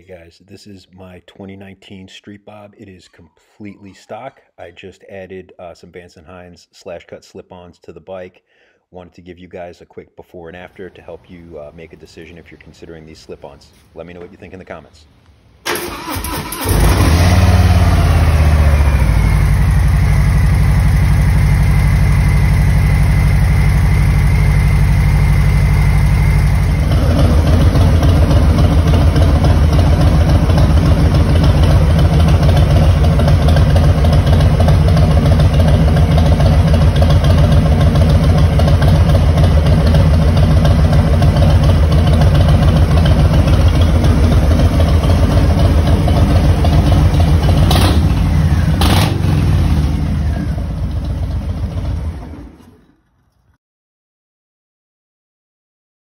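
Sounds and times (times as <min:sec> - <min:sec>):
motorcycle engine idling: 0:17.4 - 0:52.5.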